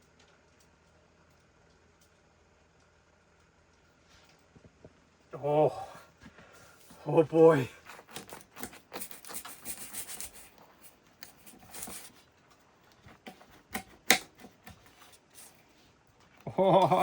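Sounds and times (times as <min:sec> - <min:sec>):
knife sawing through crisp crust: 0:07.8 - 0:12.2.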